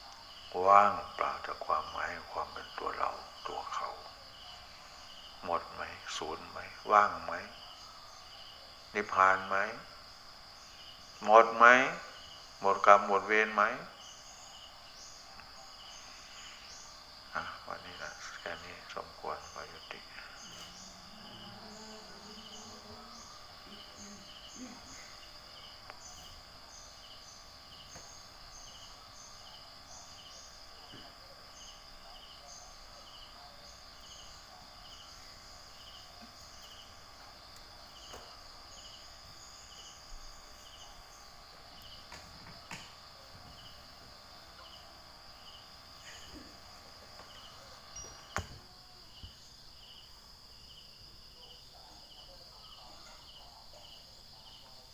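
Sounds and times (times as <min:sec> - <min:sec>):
insect chirp: 0:00.0 - 0:54.9
insect high-pitched trill: 0:00.0 - 0:54.9
faint knocks: 0:46.3 - 0:49.4.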